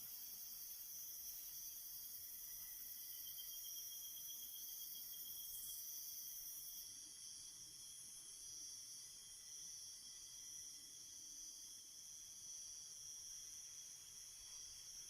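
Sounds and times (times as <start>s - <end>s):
pulsing high insect trill: 0.0s - 6.8s
crickets chirping: 0.0s - 15.0s.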